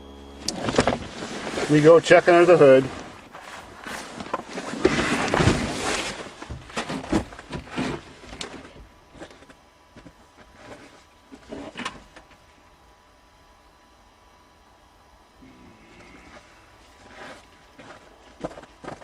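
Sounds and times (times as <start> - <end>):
car hood scraping rustle: 0.6 - 9.5, 16.9 - 19.0.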